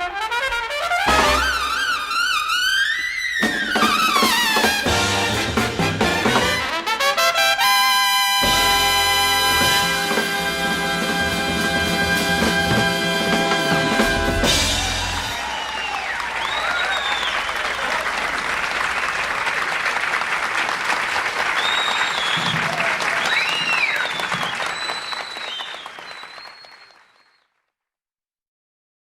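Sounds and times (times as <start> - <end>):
audience applauding and cheering: 8.5 - 27.4.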